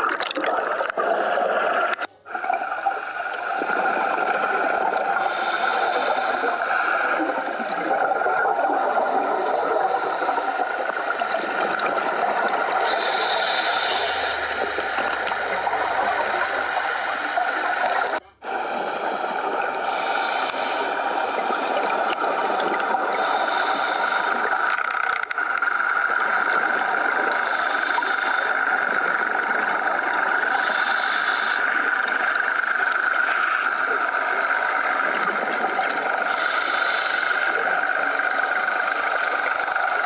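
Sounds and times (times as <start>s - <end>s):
diver breathing through regulator: 4.1s - 7.9s, 8.7s - 21.2s, 22.8s - 25.6s, 27.3s - 29.6s, 30.3s - 33.1s, 36.2s - 39.4s
steady hiss: 8.7s - 40.0s.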